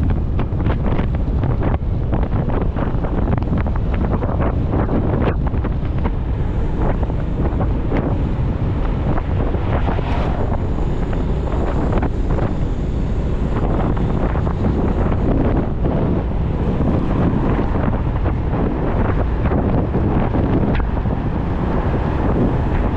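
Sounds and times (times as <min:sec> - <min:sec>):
road noise: 0:00.0 - 0:22.9
wind rushing over microphone: 0:00.0 - 0:22.9
motorcycle engine: 0:03.1 - 0:22.9.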